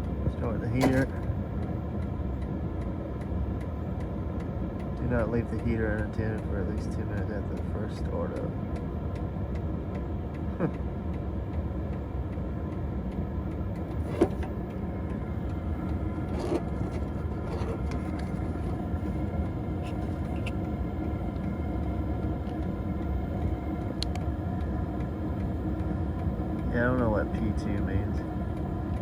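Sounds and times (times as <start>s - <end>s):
diesel heater rumbling: 0.0s - 29.0s.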